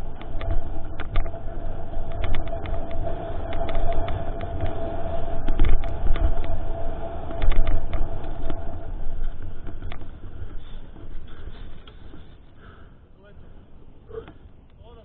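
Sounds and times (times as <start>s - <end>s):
bike rattling and clicking: 0.0s - 12.9s
steady high whine: 0.0s - 15.0s
wind rumble on microphone: 0.0s - 15.0s.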